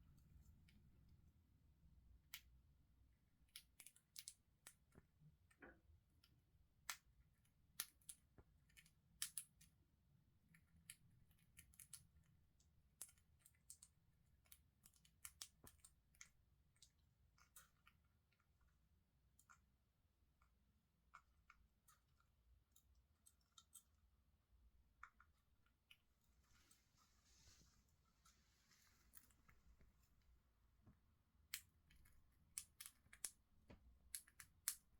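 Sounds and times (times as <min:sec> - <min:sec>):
parrot beak crunching food: 0:10.7 - 0:12.3, 0:31.5 - 0:33.4, 0:34.0 - 0:34.9.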